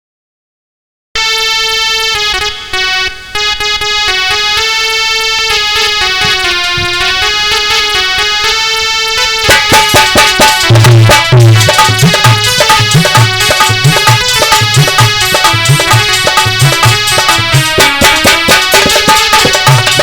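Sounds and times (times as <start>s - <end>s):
synthesizer keyboard melody: 1.2s - 20.0s
tabla-like drum strokes: 5.3s - 8.7s, 9.3s - 20.0s.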